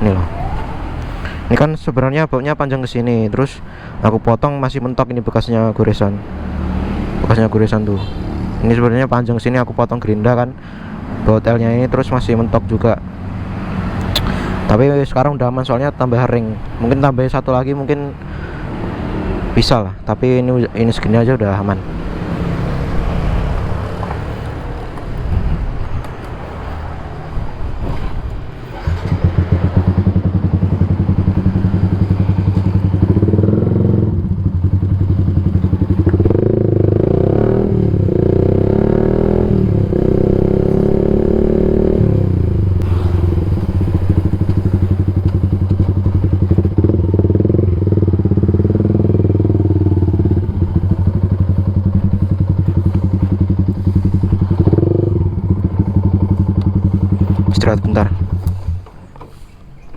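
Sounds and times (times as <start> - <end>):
motorcycle engine revving and idling: 28.3 - 59.2.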